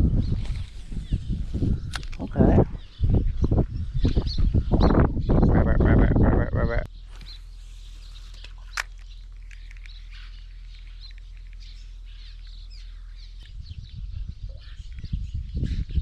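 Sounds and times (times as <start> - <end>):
small birds chirping: 0.0 - 16.0
uneven low rumbling: 0.0 - 16.0
steady low hum: 5.7 - 15.7.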